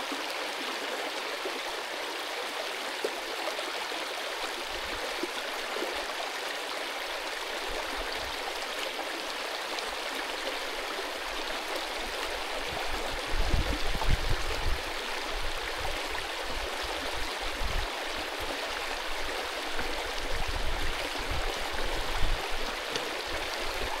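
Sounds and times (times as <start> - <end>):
stream rushing over rocks: 0.0 - 24.0
wind buffeting microphone: 12.7 - 15.9, 20.3 - 22.7.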